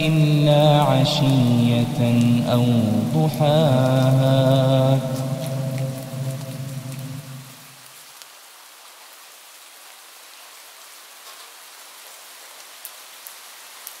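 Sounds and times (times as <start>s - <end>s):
person chanting: 0.0s - 7.6s
steady rain hiss: 0.0s - 14.0s
raindrop taps: 2.0s - 7.5s.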